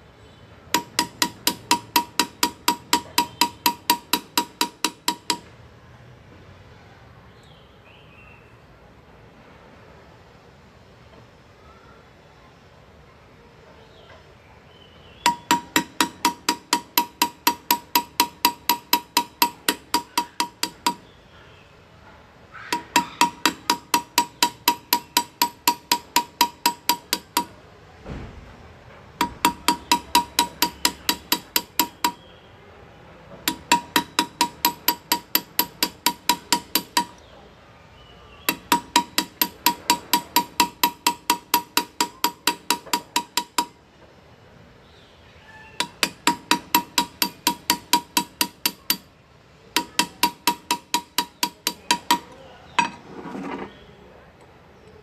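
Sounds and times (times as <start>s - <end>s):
hammer tapping graver into metal: 0.7s - 5.5s, 15.2s - 21.1s, 22.7s - 27.6s, 29.2s - 32.2s, 33.4s - 37.2s, 38.5s - 43.8s, 45.8s - 49.1s, 49.7s - 53.0s.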